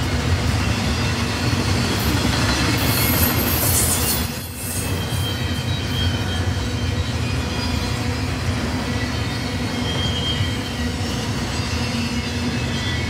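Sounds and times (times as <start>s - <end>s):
train wheels rumbling on rail: 0.0s - 13.0s
high-pitched wheel squeal: 2.8s - 13.0s.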